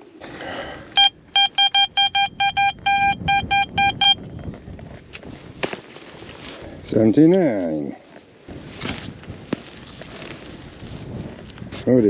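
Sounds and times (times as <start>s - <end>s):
metal detector beeps: 1.0s - 4.5s.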